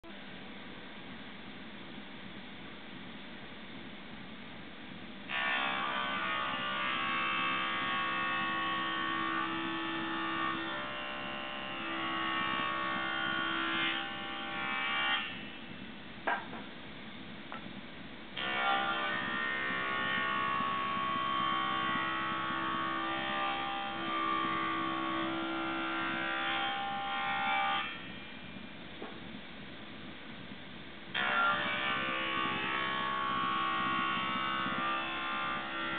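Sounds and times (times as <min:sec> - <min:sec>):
power saw cutting wood: 0:05.3 - 0:15.5, 0:18.4 - 0:28.1, 0:31.2 - 0:35.9.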